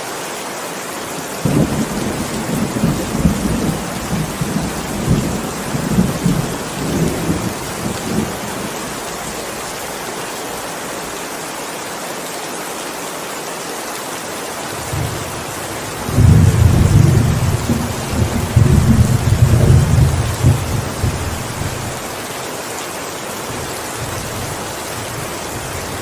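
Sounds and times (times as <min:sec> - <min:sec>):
heavy rain hissing: 0:00.0 - 0:26.0
thunder rumbling: 0:01.4 - 0:09.4, 0:14.9 - 0:22.0.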